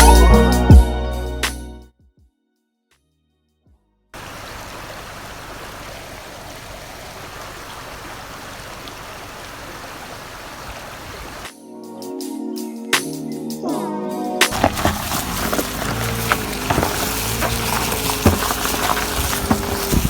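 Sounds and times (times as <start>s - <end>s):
flowing water rushing: 4.2s - 11.5s, 14.5s - 20.0s.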